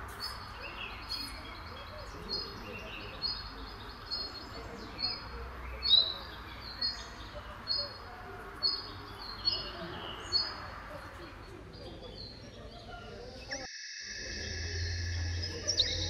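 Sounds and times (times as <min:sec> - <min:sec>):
bird chirping: 0:11.3 - 0:16.0.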